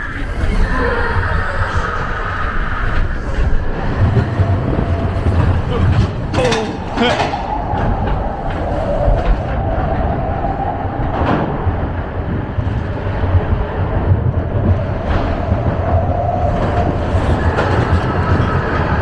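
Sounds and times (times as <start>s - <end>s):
roller coaster rumbling on track: 0.0s - 19.0s
wheel clatter: 0.0s - 19.0s.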